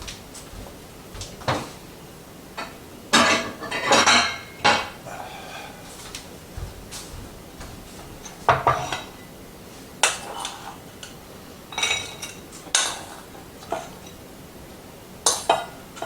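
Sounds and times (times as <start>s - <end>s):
metal utensils clinking on dishes: 2.6s - 5.0s, 8.2s - 9.3s, 10.0s - 14.2s, 15.2s - 16.0s.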